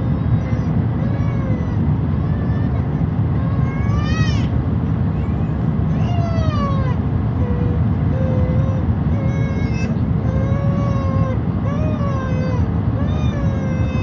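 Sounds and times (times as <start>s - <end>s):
airliner cabin rumble: 0.0s - 14.0s.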